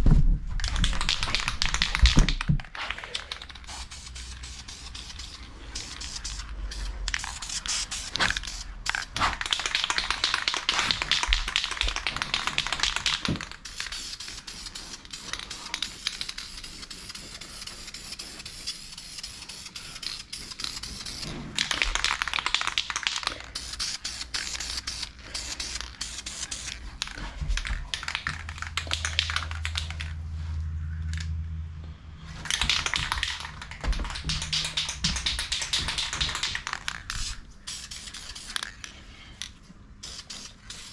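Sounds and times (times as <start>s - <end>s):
aerosol spray can hissing: 3.3s - 21.3s, 23.6s - 26.8s, 32.5s - 38.6s, 40.0s - 40.9s.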